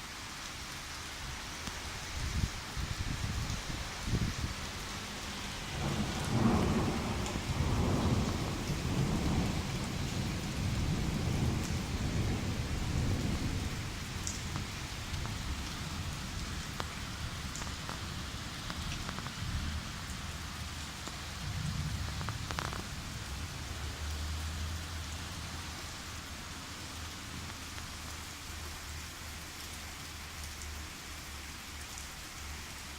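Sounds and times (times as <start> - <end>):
steady rain falling: 0.0 - 32.9
rolling thunder: 5.7 - 16.2, 21.4 - 23.3.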